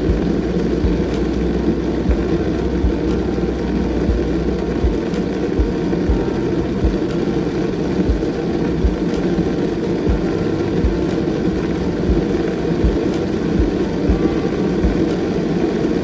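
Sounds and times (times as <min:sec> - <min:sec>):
low thumps: 0:00.0 - 0:07.3, 0:10.1 - 0:15.3.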